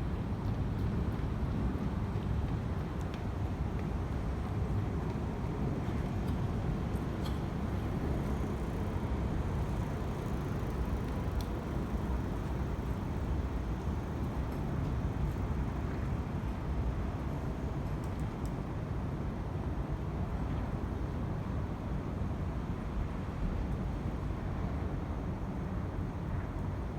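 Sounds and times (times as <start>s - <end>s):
road traffic rumble: 7.1s - 15.9s.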